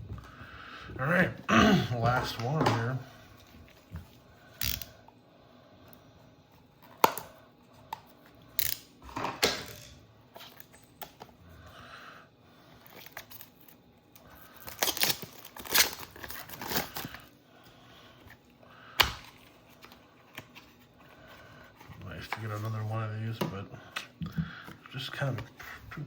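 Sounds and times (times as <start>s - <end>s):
wrapper tearing and crinkling: 14.5s - 17.3s.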